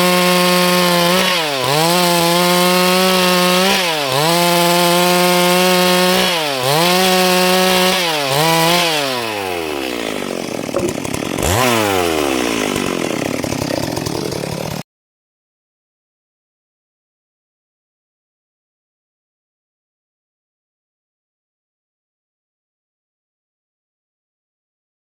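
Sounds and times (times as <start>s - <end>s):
chainsaw cutting wood: 0.0s - 14.8s
chainsaw idling: 0.0s - 14.8s.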